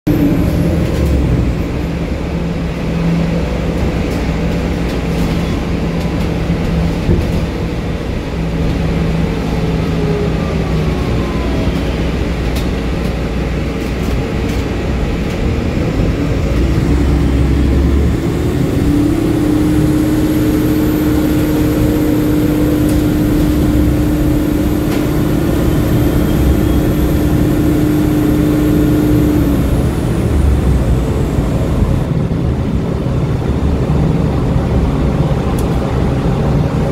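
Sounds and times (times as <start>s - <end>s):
bus engine hum: 0.0s - 36.9s
high whine: 15.2s - 36.9s.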